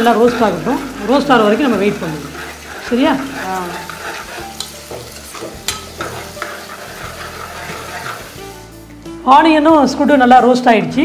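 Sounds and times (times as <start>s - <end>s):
food sizzling in oil: 0.0s - 9.2s
ladle scraping a pot: 0.2s - 8.7s.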